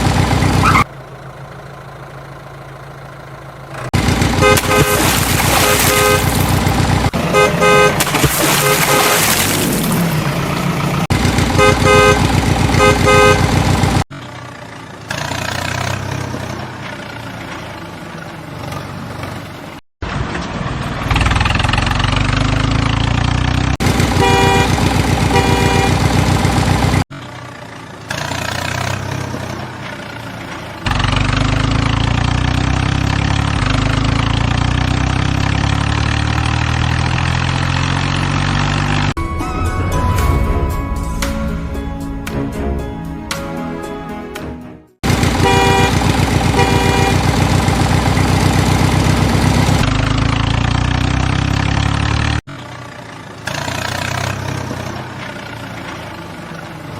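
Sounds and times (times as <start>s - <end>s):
tractor engine rumble: 0.0s - 44.4s, 45.0s - 56.9s
tractor horn toots: 4.3s - 9.5s, 11.4s - 14.0s, 23.9s - 27.0s, 45.0s - 48.7s.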